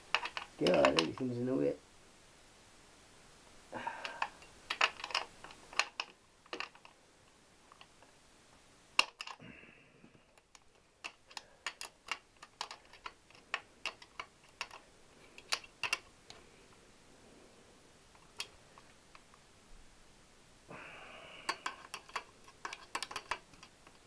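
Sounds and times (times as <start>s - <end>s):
metal spanner clicking on nuts: 0.1s - 1.2s, 21.5s - 24.0s.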